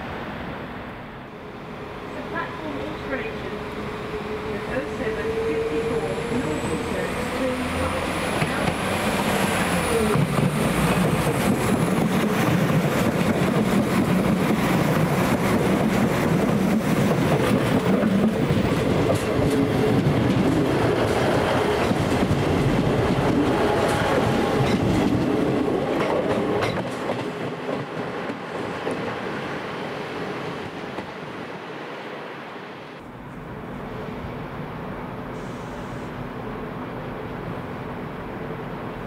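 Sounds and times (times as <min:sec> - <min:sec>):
train wheels clicking over joints: 0:08.2 - 0:29.1.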